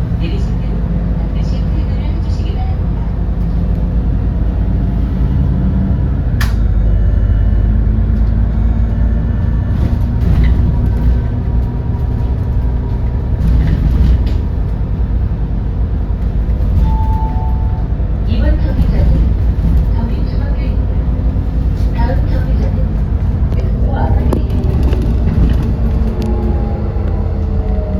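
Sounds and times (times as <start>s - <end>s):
bus engine running: 0.0s - 27.9s.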